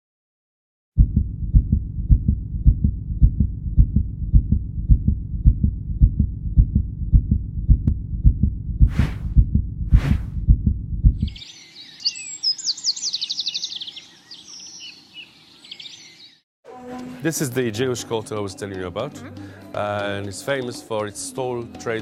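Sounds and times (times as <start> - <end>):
heartbeat thumping: 1.0 - 11.4
short whooshes: 8.9 - 10.4.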